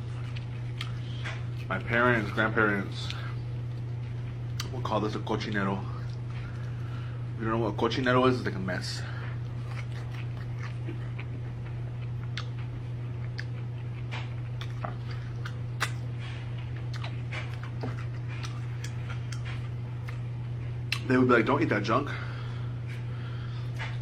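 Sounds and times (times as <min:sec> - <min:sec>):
person chewing and lip-smacking: 0:00.0 - 0:01.9, 0:03.0 - 0:04.8, 0:09.3 - 0:21.1
steady low hum: 0:00.0 - 0:24.0.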